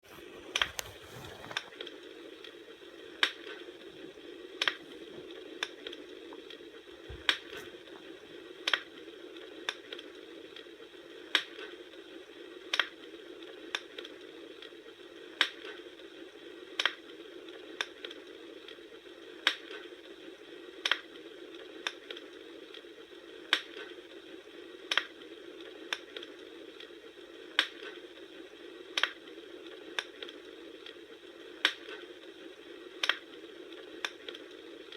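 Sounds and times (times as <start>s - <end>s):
campfire burning: 0.0s - 8.8s.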